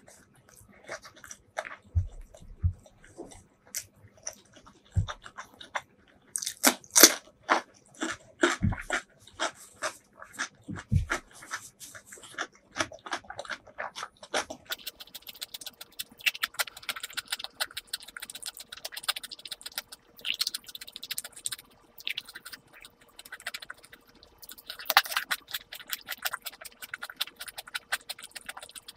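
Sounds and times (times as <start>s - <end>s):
wet mouth chewing smacks: 7.5s - 28.9s.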